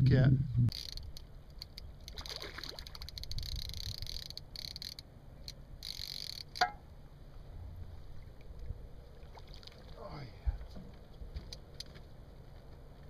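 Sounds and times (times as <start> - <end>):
catfish croaking raspy pulses: 0.7 - 6.7.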